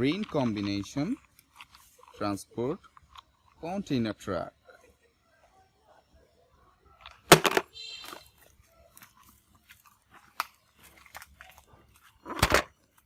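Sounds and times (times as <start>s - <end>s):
plastic toy truck knock: 7.3s - 7.7s.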